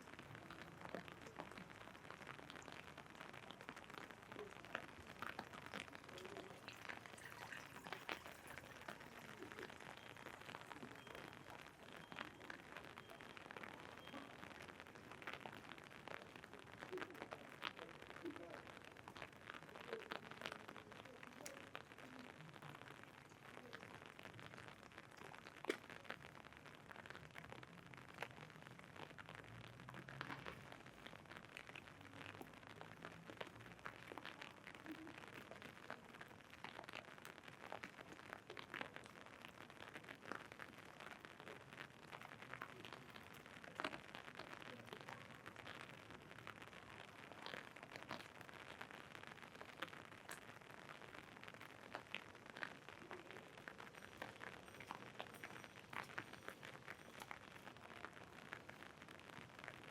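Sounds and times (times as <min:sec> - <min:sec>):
raindrops ticking on umbrella: 0:00.0 - 0:59.9
steady hiss of rain: 0:00.0 - 0:59.9.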